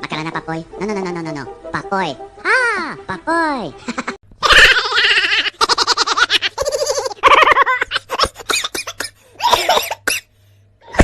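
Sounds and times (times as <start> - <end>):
high-pitched laughter: 3.8 - 8.5.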